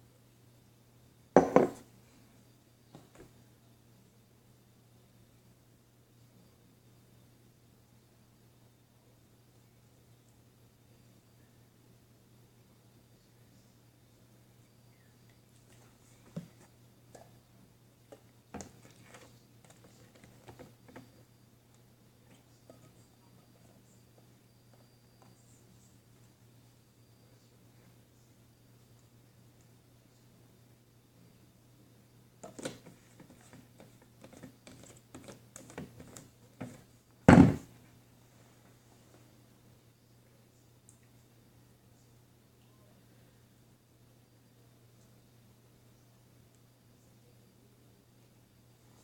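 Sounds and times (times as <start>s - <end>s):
loud thump: 37.3s - 37.7s.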